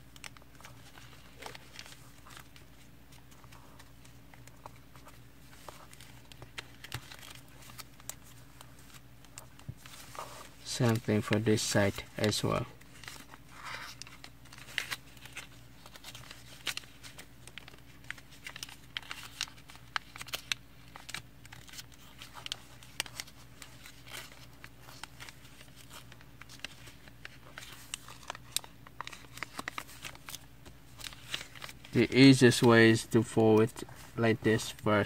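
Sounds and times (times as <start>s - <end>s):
low steady hum: 0.0s - 35.0s
paper crinkling and rustling: 0.0s - 35.0s
paper creasing clicks: 10.6s - 35.0s.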